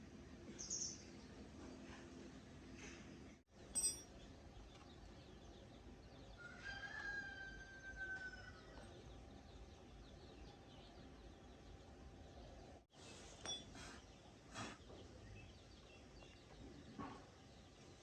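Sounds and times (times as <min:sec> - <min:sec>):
rooster crowing: 0:06.4 - 0:08.9.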